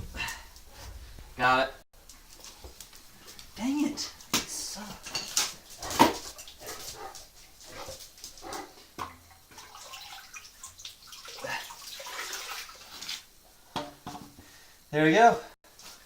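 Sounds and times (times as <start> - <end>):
water sloshing and dripping: 5.0 - 14.3.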